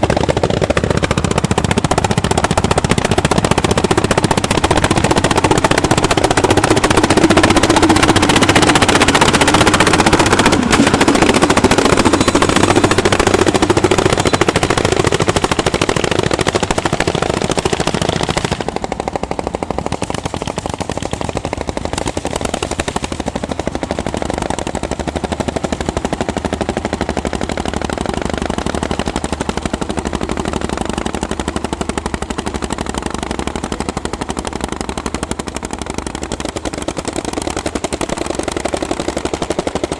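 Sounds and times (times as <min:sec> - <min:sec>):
tractor engine exhaust beats: 0:00.0 - 0:39.9.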